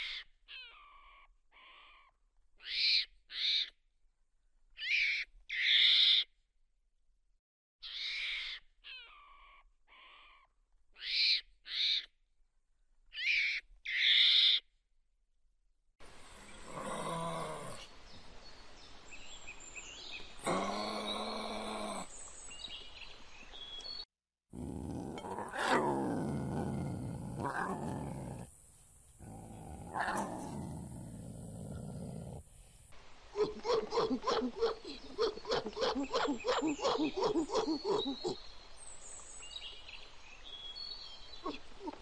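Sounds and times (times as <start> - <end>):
lion roaring: 16.4 - 17.9, 20.4 - 22.1, 24.5 - 28.6, 29.2 - 32.8
rapid rhythmic animal calls: 33.4 - 38.4.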